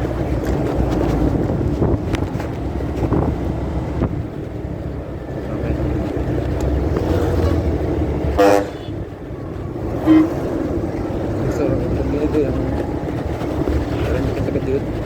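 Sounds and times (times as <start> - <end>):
faint clicks and rustles: 0.0 - 8.3, 8.9 - 15.0
motorcycle road rumble: 0.0 - 15.0
muffled wind buffeting: 0.0 - 15.0.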